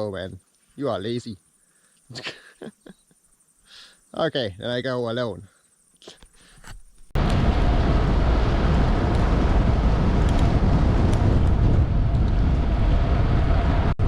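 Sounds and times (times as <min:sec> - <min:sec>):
low steady rumble: 0:07.2 - 0:14.0
wind buffeting microphone: 0:07.2 - 0:14.0.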